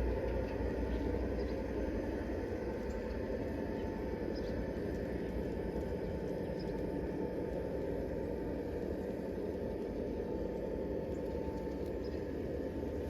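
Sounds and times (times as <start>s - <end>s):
model train humming on track: 0.0s - 13.0s.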